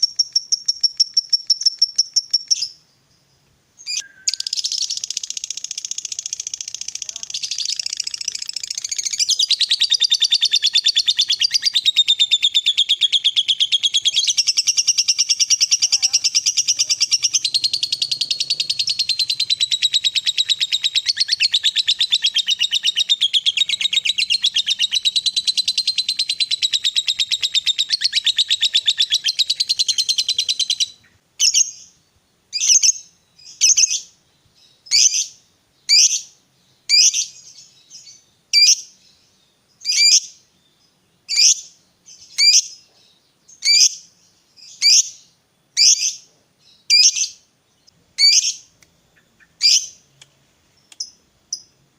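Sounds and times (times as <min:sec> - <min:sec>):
lovebird chattering: 0:00.0 - 0:02.8, 0:03.9 - 0:31.8.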